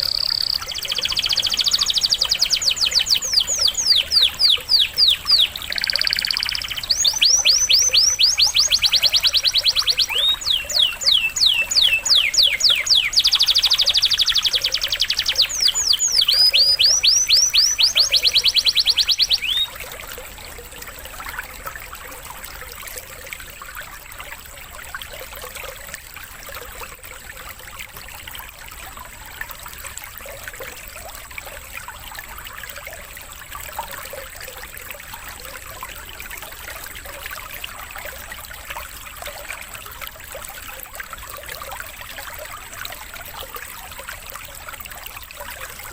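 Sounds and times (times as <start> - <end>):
canary singing: 0.0 - 19.8
trickling water: 0.0 - 45.9.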